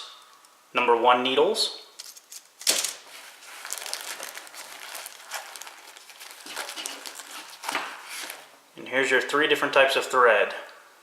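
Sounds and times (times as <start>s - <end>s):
packaging crinkling: 2.0s - 8.6s.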